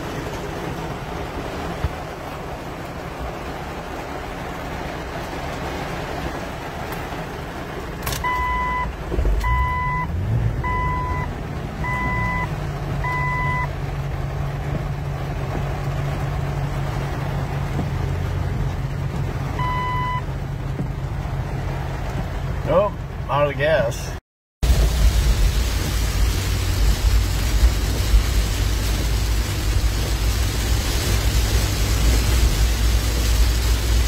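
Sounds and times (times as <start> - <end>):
car engine starting and idling: 0.0 - 34.0
heavy rain on vehicle: 0.0 - 34.0
dashboard warning chime: 8.2 - 13.7, 19.6 - 20.3.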